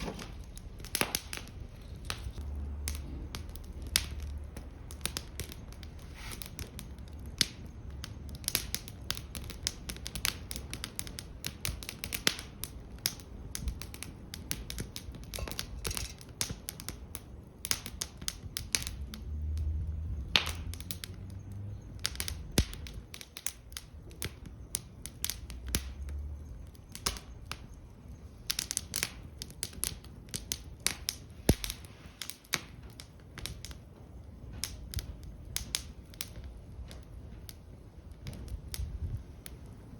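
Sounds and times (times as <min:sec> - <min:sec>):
low rumble: 0:00.0 - 0:06.0
wood fire crackling and popping: 0:00.0 - 0:39.9.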